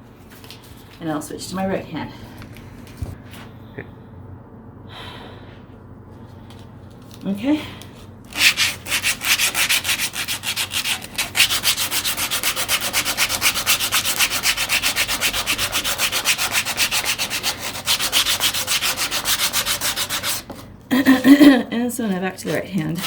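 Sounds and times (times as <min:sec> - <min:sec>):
sandpaper rubbing on wood: 0:08.3 - 0:20.6.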